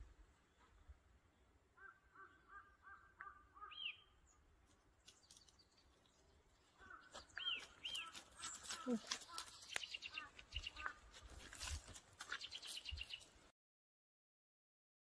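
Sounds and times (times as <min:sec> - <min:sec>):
faint bird calls: 0:01.7 - 0:04.4, 0:06.6 - 0:11.2.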